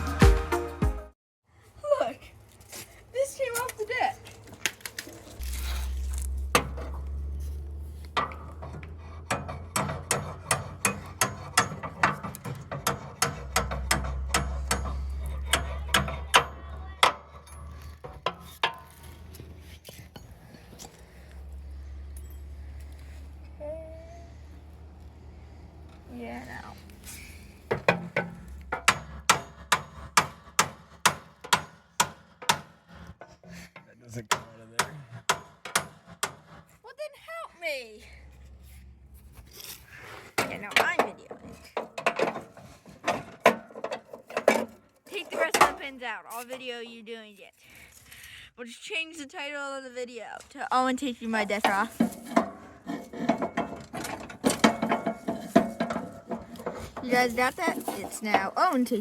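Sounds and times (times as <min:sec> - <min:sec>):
low rumble: 0:05.4 - 0:09.0
hammer striking metal with ring: 0:09.3 - 0:17.8, 0:27.7 - 0:32.7.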